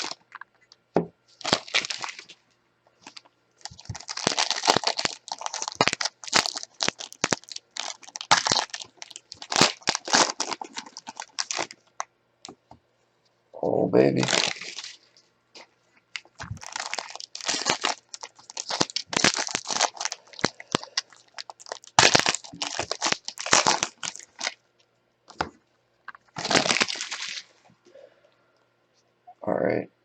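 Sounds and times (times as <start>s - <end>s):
plastic packaging crinkling and tearing: 0.0s - 0.4s, 1.3s - 2.4s, 3.0s - 12.1s, 14.2s - 24.6s, 26.1s - 27.6s.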